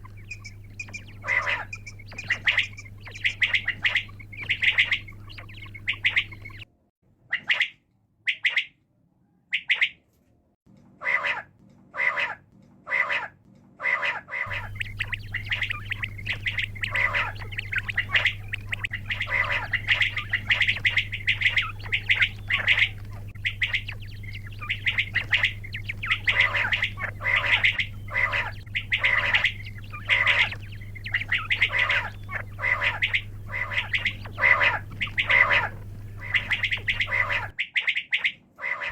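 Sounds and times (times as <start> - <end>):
bird harsh calls: 0.0 - 6.7, 12.0 - 38.9
low electrical hum: 0.0 - 6.7, 14.5 - 37.6.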